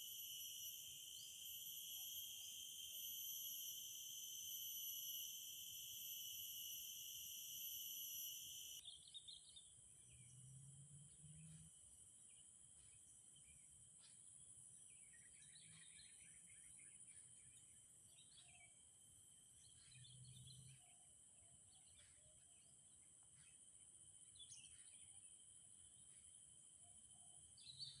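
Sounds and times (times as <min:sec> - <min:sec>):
insects buzzing: 0:00.0 - 0:08.8.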